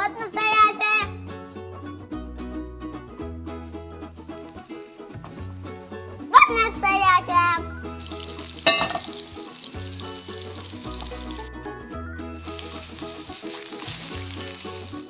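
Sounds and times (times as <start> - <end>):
light background music with bass: 0.0 - 15.0
burger patty sizzling in pan: 4.3 - 5.4, 8.0 - 11.6, 12.3 - 15.0.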